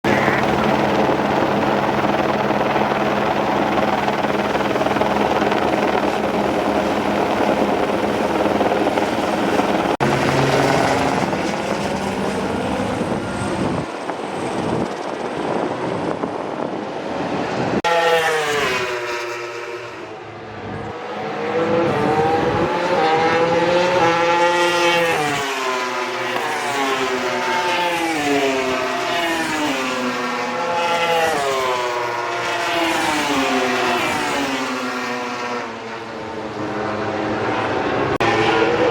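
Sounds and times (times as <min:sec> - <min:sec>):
helicopter engine and rotor drone: 0:00.0 - 0:17.9
racing motorcycles revving past: 0:08.7 - 0:13.9, 0:17.8 - 0:38.9.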